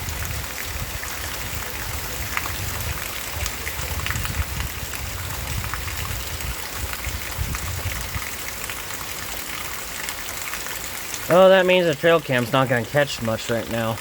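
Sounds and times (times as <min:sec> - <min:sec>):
wind buffeting microphone: 0:00.0 - 0:08.4
heavy rain falling: 0:00.0 - 0:14.0.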